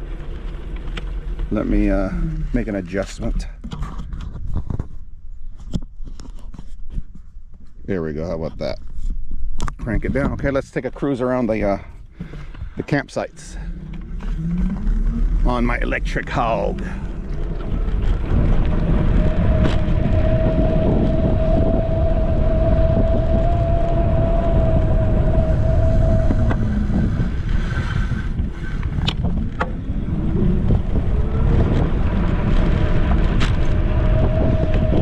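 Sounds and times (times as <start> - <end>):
wind rumbling on microphone: 0.0 - 35.0
electric scooter motor whine: 13.6 - 35.0.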